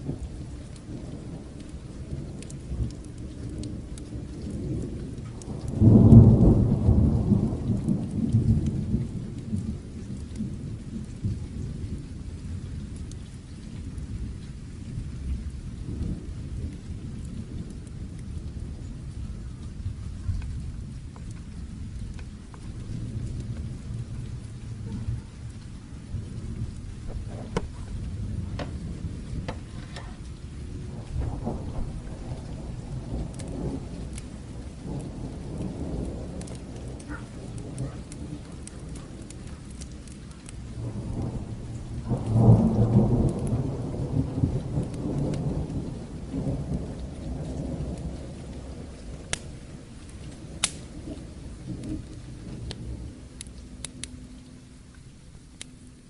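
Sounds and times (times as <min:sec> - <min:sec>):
sharp crackles: 0:00.0 - 0:11.4, 0:16.0 - 0:56.0
rolling thunder: 0:00.0 - 0:55.7
steady rain: 0:00.0 - 0:56.0.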